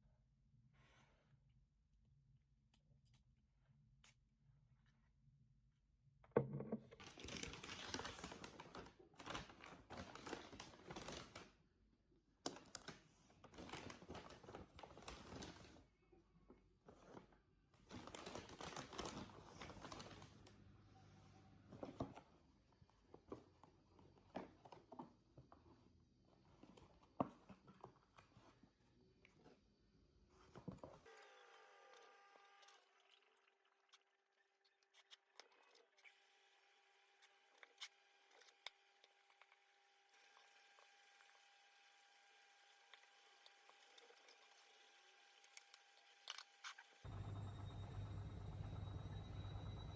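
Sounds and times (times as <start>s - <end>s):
packaging crinkling and rustling: 7.0s - 11.6s, 12.4s - 15.8s, 17.8s - 20.5s.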